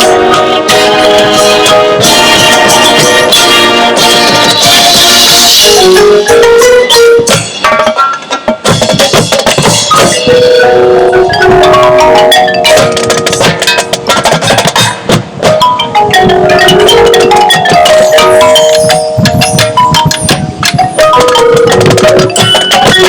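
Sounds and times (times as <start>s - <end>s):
mallet percussion: 0.0s - 23.0s
marching band music: 0.0s - 23.0s.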